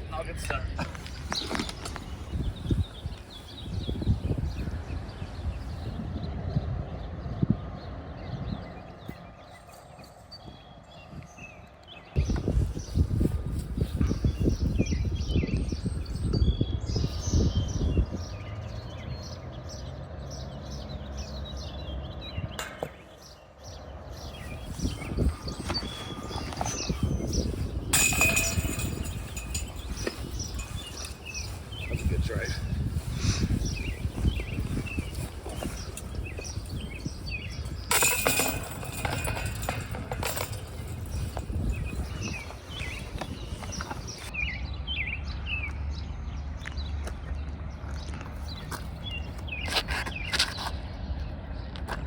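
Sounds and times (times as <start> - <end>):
birds chirping: 0.0 - 51.8
wind rumble on microphone: 0.0 - 52.0
loud clatter with ringing tone: 25.3 - 32.2, 34.6 - 43.0.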